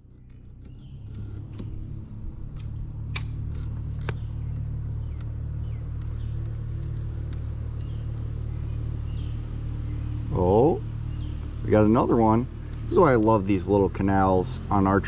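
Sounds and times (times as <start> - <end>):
high insect buzz: 0.0 - 15.0
low motor hum: 0.0 - 15.0
sharp clicks: 2.5 - 4.3.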